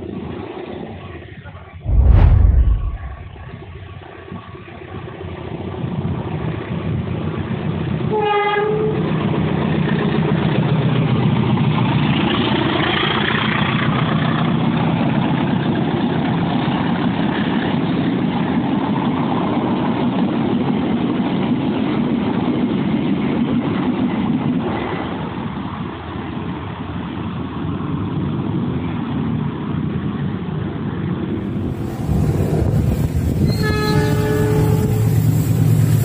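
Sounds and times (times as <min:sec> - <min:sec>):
train horn blast: 0:08.1 - 0:08.9, 0:33.5 - 0:35.2
train wheels rumbling on rails: 0:31.3 - 0:36.0.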